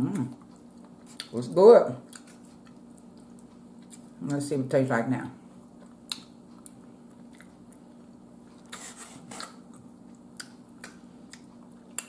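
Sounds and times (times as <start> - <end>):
person chewing: 0.0 - 1.4, 2.0 - 4.2, 5.6 - 12.0.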